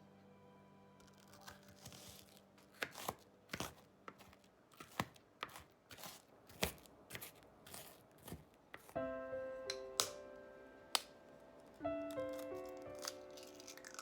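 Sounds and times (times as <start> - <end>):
knife chopping on cutting board: 2.7 - 9.0.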